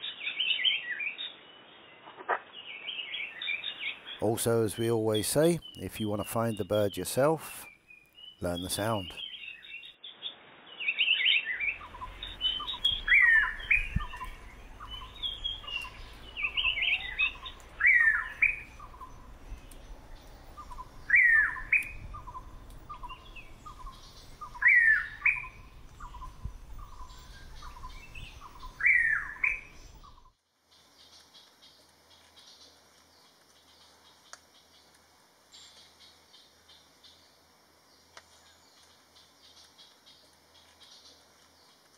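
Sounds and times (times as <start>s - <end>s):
bird whistled call: 10.8s - 19.2s, 20.6s - 30.3s.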